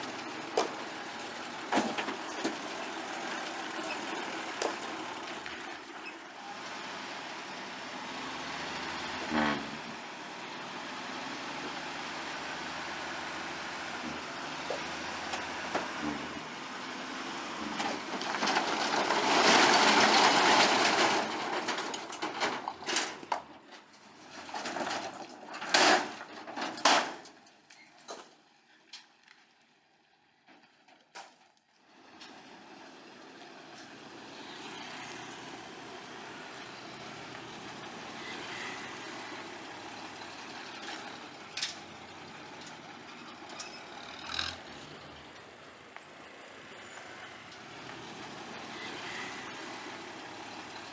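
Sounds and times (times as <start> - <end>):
vehicle running noise: 0.0 - 30.5, 31.7 - 50.9.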